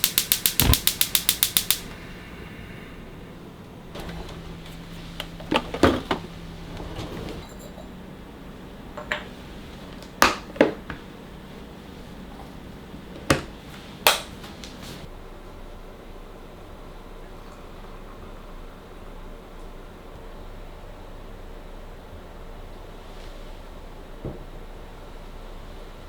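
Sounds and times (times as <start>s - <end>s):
faint steady hum: 0.0s - 26.0s
glassware and dishes clinking: 7.0s - 8.0s.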